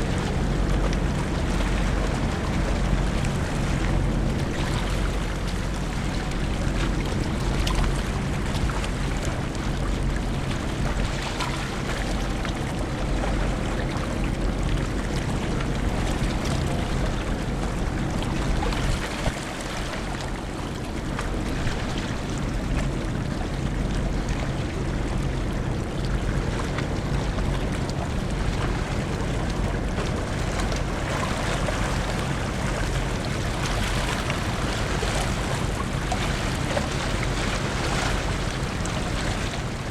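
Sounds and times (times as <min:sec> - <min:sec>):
wind and water rushing: 0:00.0 - 0:39.9
ship engines humming: 0:28.0 - 0:39.9.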